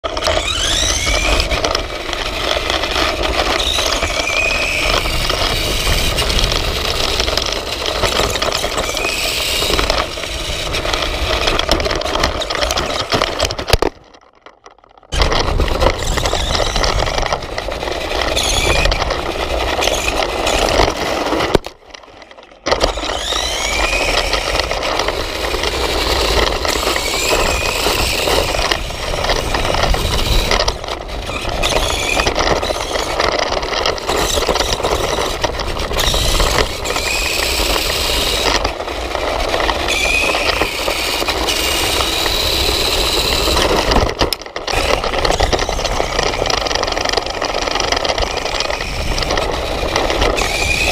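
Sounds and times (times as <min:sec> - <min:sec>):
electric motor and gear whine: 0:00.0 - 0:50.9
wheels rolling rumble and rattle: 0:00.0 - 0:50.9.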